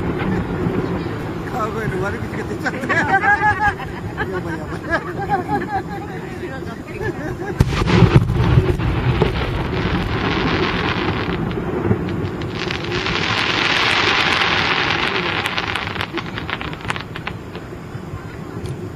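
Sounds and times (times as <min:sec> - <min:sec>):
firework boom: 0:00.0 - 0:03.0, 0:07.6 - 0:18.9
crackling firework sparks: 0:00.0 - 0:18.9.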